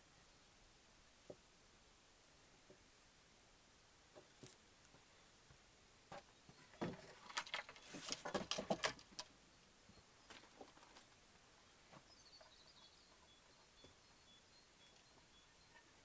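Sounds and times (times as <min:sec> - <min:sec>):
faint high chirp: 0:12.0 - 0:16.0.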